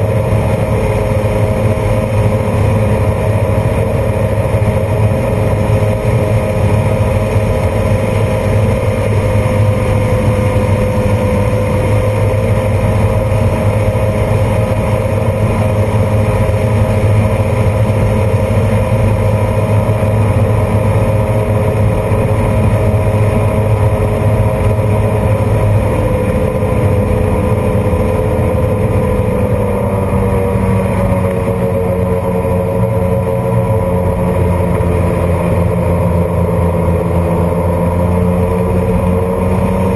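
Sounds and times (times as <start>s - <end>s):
jet boat engines running: 0.0s - 39.9s.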